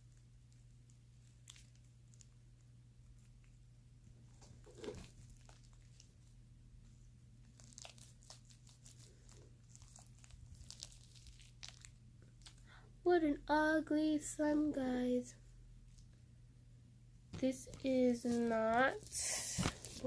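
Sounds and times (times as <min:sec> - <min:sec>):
slime crackling and squelching: 0:00.0 - 0:03.5, 0:04.4 - 0:06.4, 0:07.4 - 0:12.8
low steady hum: 0:00.0 - 0:20.0.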